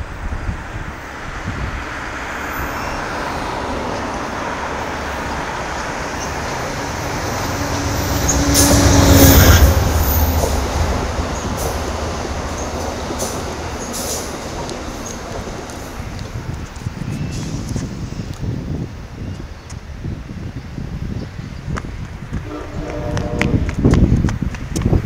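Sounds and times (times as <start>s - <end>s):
train passing with rumble: 0.0s - 25.0s
train wheel clicks: 10.0s - 16.9s.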